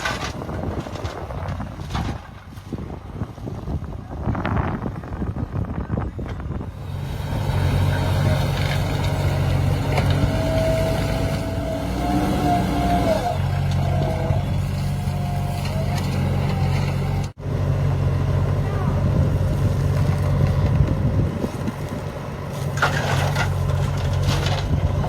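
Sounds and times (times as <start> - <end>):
heavy diesel engine running: 6.4 - 25.0.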